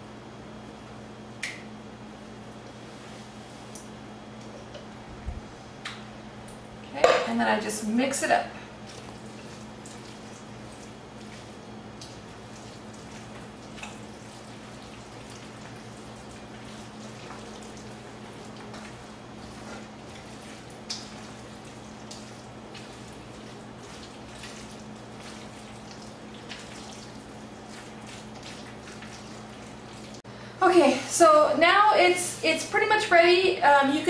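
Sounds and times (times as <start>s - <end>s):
spoon stirring thick mixture: 8.8s - 30.2s.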